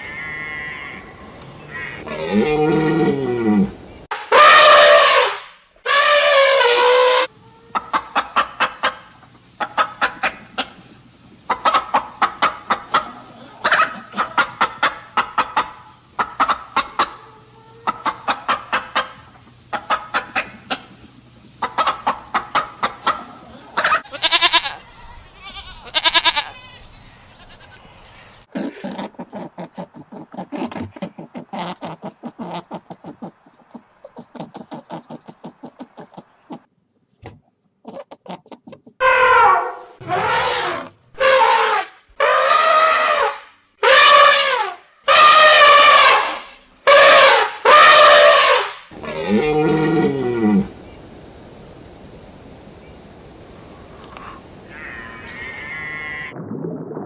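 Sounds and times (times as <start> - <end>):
animal calls: 45.2 - 50.8.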